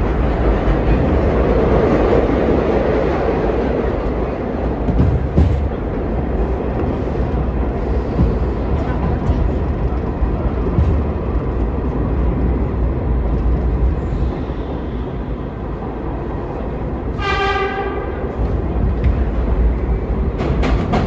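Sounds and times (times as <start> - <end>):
subway train rumbling: 0.0 - 21.0
short train horn blast: 17.1 - 18.4.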